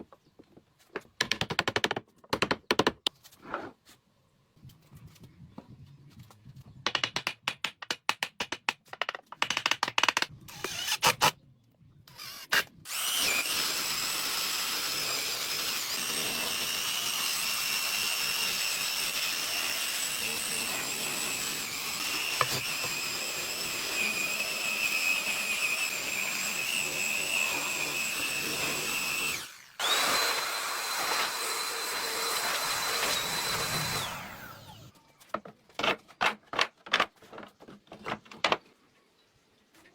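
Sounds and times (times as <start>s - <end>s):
sharp knocks and taps on wood: 0.9s - 3.1s, 6.8s - 10.3s
power tool whining: 10.5s - 11.3s, 12.1s - 35.0s.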